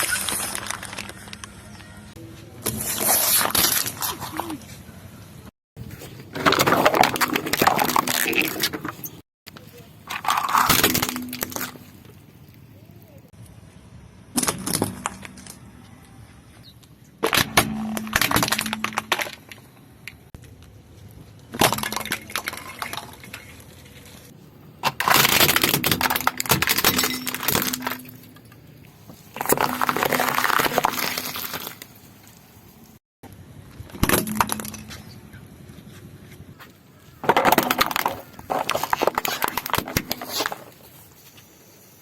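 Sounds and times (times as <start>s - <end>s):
tyre crushing brittle objects: 6.2s - 12.2s, 24.8s - 28.3s, 29.0s - 32.4s, 37.2s - 41.0s.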